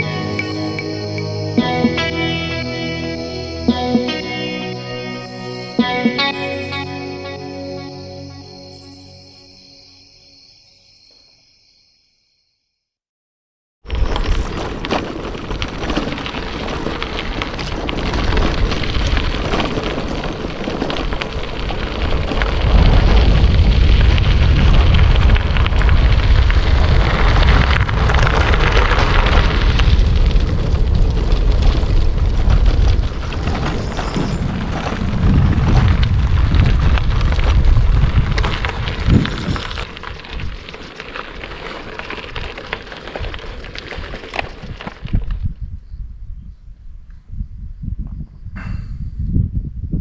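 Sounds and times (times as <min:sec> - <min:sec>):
campfire crackling and popping: 0:13.9 - 0:45.6
heavy low rumble: 0:17.4 - 0:45.8.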